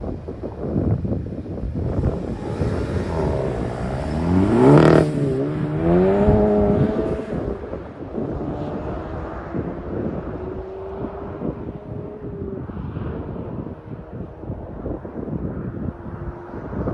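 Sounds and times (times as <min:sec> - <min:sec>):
wind buffeting microphone: 0:00.0 - 0:16.9
car engine accelerating hard: 0:01.2 - 0:16.9.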